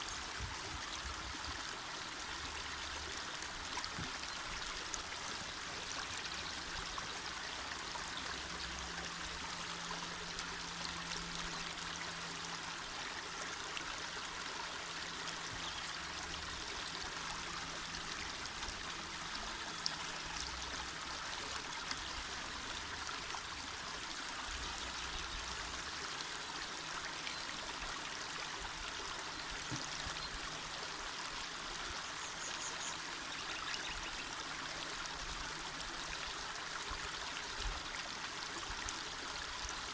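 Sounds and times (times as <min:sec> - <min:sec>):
river running over stones: 0:00.0 - 0:39.9.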